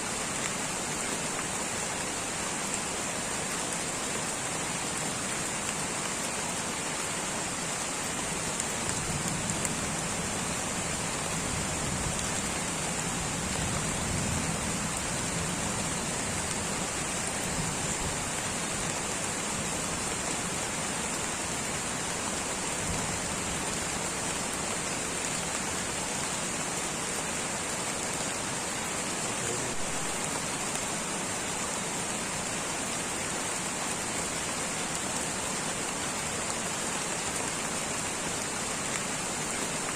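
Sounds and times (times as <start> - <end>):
light rain patter: 0.0 - 39.9.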